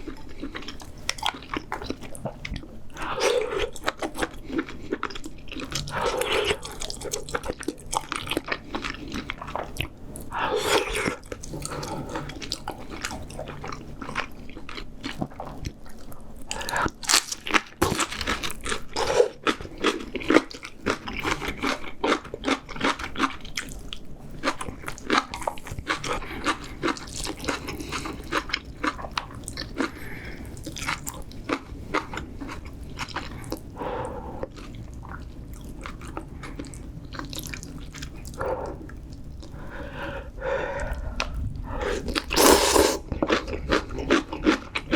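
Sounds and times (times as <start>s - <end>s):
person chewing crunchy food: 0.0s - 44.9s
wet mouth clicks: 42.2s - 43.0s.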